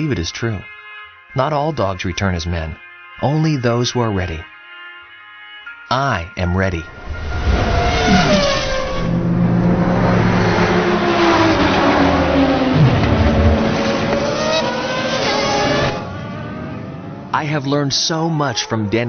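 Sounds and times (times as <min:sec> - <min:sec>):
race car engines passing: 0:06.8 - 0:19.0.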